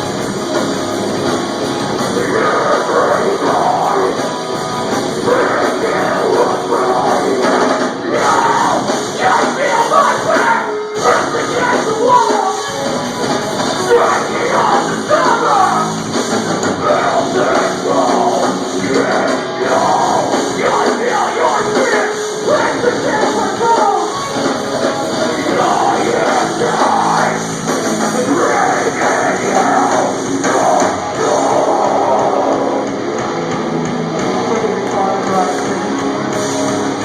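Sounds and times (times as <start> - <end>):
distorted electric guitars: 0.0 - 37.0
drums: 0.0 - 37.0
vocalist yelling: 5.2 - 12.8, 13.7 - 16.0, 16.8 - 24.4, 25.3 - 27.5.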